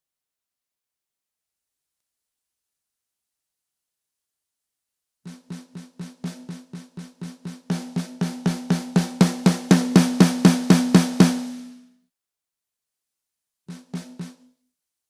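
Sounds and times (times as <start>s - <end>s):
snare drum hits: 5.3s - 11.8s, 13.7s - 14.4s.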